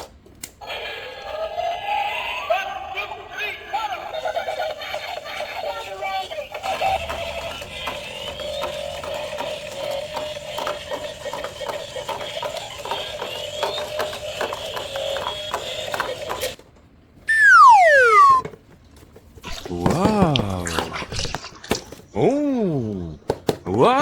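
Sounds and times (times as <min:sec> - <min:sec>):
cartoon falling whistle: 0:17.3 - 0:18.4.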